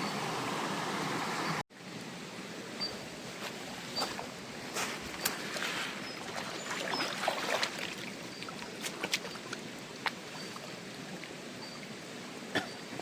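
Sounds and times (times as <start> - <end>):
stream water splashing: 3.1 - 13.0.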